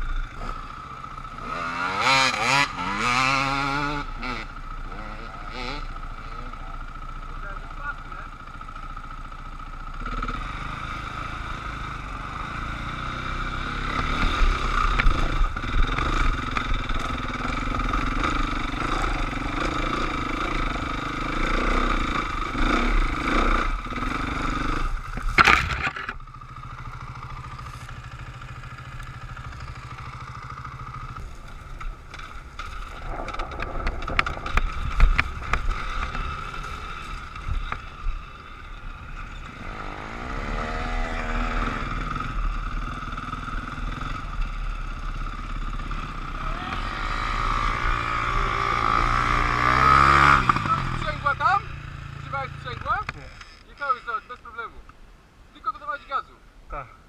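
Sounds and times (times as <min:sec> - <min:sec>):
dirt bike engine running: 0:00.0 - 0:54.7
knocks and scrapes: 0:25.1 - 0:26.2.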